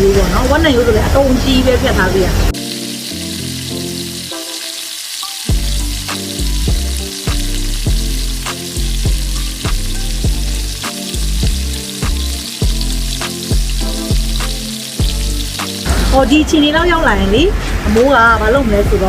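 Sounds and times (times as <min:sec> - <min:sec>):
ribs sizzling on a grill: 0:00.0 - 0:17.5
background music with beat: 0:05.2 - 0:15.9.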